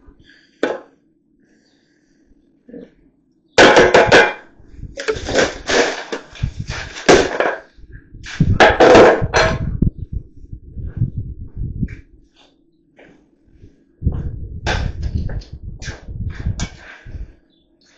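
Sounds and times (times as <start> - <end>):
scraping and clattering: 3.6 - 9.8, 14.7 - 17.4.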